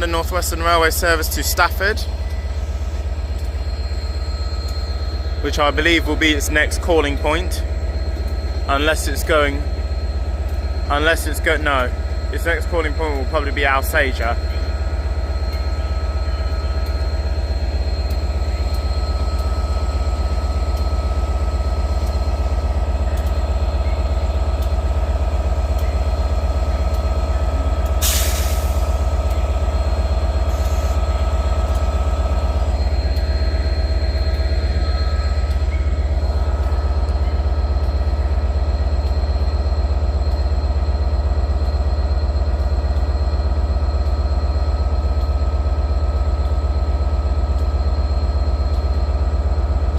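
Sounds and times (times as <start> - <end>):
steady whining tones: 0.0 - 49.9
train low hum: 0.0 - 49.9
hiss of air: 28.0 - 29.0.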